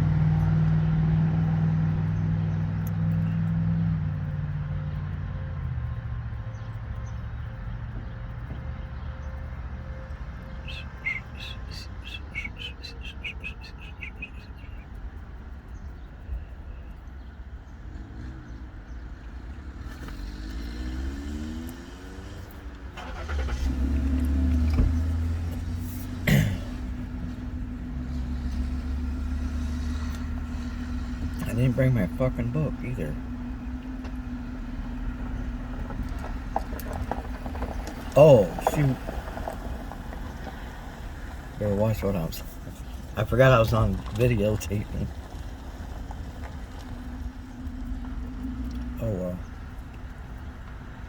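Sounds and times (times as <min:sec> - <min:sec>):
vehicle passing by: 0:00.0 - 0:14.9, 0:17.7 - 0:51.0
car engine and road rumble: 0:00.0 - 0:51.0
high bird chirps: 0:10.4 - 0:17.0.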